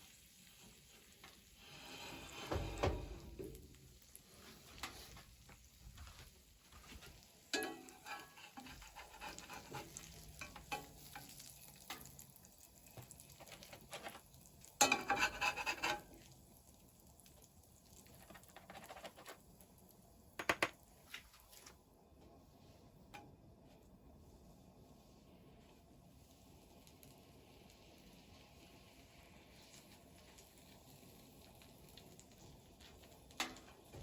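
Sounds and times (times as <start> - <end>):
faint sizzle: 0.0 - 34.0
utensil scraping and clinking on pan: 1.7 - 3.2, 7.5 - 12.2, 14.8 - 16.3.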